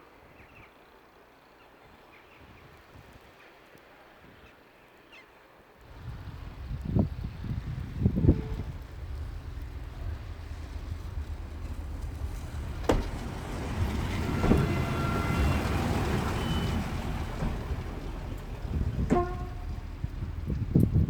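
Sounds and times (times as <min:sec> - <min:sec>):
diesel train engine: 0:05.8 - 0:21.0.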